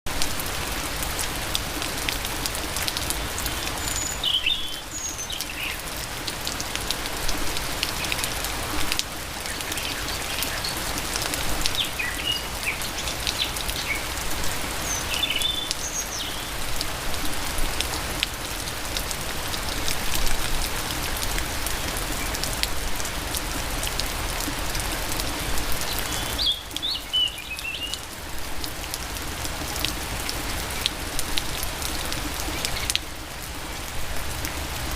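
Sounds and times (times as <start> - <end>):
rain falling: 0.1 - 34.9
raindrops tapping on surfaces: 0.1 - 34.9
bird chirping: 3.6 - 5.8, 11.8 - 14.0, 14.8 - 16.6, 25.9 - 28.0.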